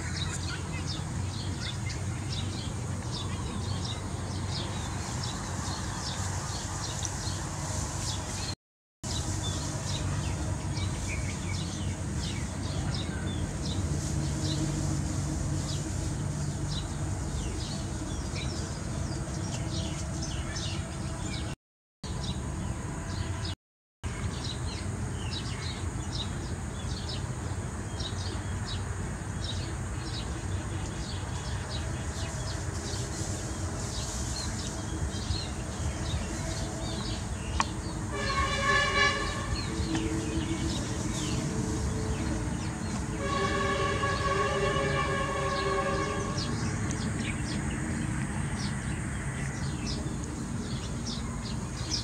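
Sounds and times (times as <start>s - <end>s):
low outdoor rumble: 9.1s - 21.5s, 26.3s - 52.0s
birds chirping: 27.9s - 52.0s.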